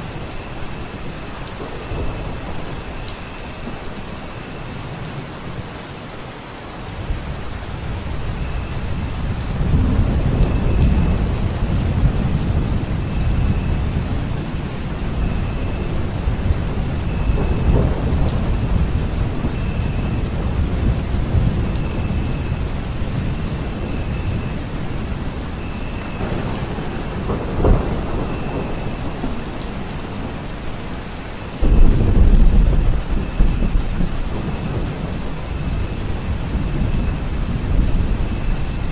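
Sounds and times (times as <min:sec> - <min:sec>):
rolling thunder: 0:00.0 - 0:05.0, 0:07.0 - 0:38.9
steady rain: 0:00.0 - 0:38.9
loud deep thunderclap: 0:08.0 - 0:24.4, 0:25.6 - 0:30.5, 0:31.6 - 0:38.7
sharp thunder crack: 0:26.2 - 0:30.4, 0:31.6 - 0:36.9.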